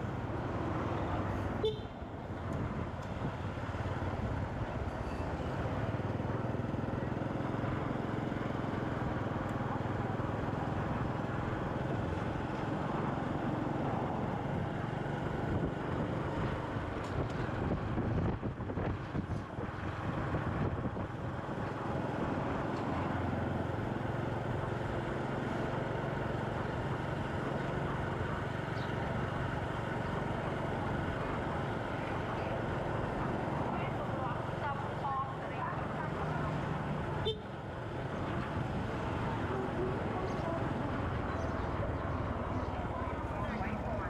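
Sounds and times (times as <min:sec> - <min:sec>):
motorcycle engine hum: 0:00.0 - 0:44.0
wind buffeting microphone: 0:15.4 - 0:21.4.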